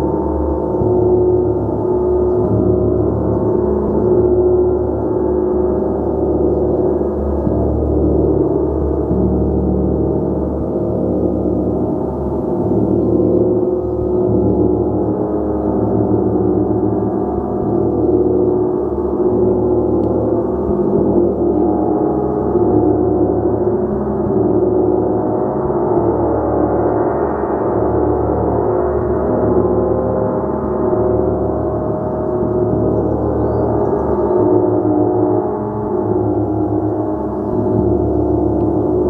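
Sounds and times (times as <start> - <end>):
large gong resonating: 0.0 - 39.0.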